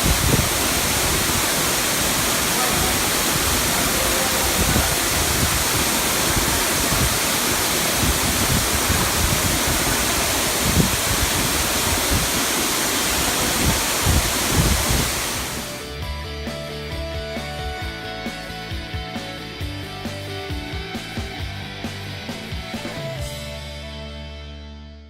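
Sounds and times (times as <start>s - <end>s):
waterfall rushing: 0.0s - 15.9s.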